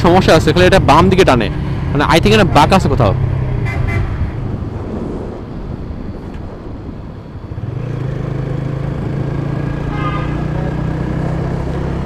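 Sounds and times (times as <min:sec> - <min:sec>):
road noise: 0:00.0 - 0:12.0
motorcycle engine: 0:07.5 - 0:12.0.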